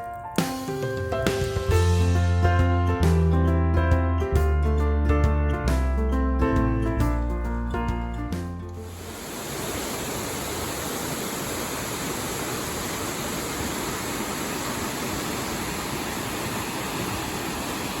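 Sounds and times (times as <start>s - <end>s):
steady rushing noise: 8.8s - 18.0s.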